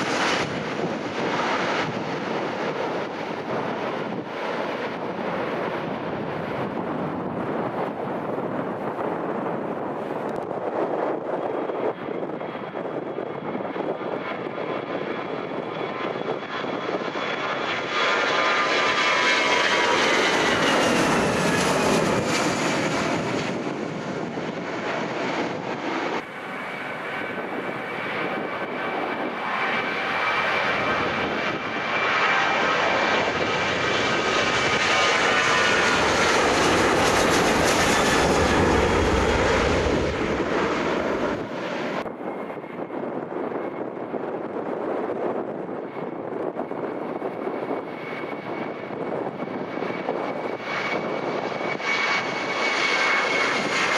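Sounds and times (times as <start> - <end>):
jet engines passing close: 0.0 - 53.9.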